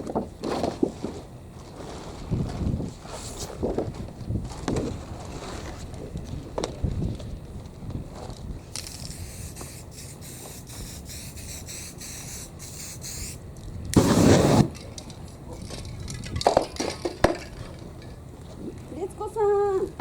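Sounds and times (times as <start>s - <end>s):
spray can hissing: 8.8s - 13.4s, 14.0s - 14.7s.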